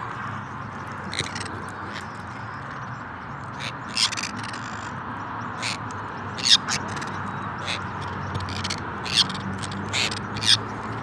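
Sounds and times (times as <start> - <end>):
conure squawking: 6.4 - 10.6.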